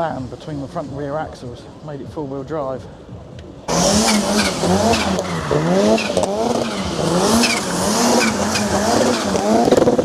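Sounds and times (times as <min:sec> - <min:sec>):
vehicle motor whine: 0:03.7 - 0:10.0.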